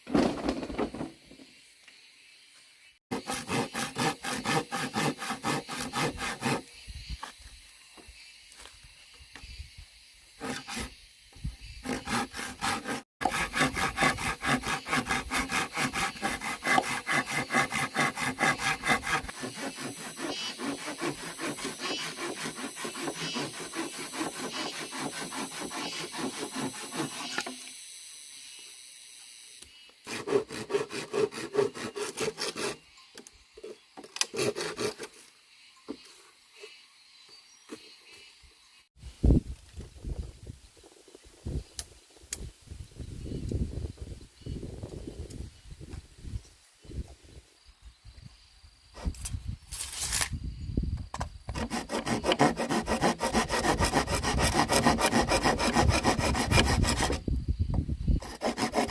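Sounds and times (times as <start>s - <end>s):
hand saw cutting wood: 3.1s - 6.7s, 10.4s - 10.9s, 11.8s - 27.7s, 30.0s - 32.8s, 34.1s - 35.2s, 51.5s - 57.2s, 58.2s - 58.9s.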